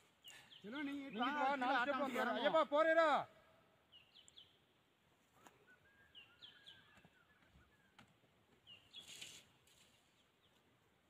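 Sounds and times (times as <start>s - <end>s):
faint bird chirps: 3.8s - 4.7s, 5.3s - 8.0s, 8.6s - 10.7s.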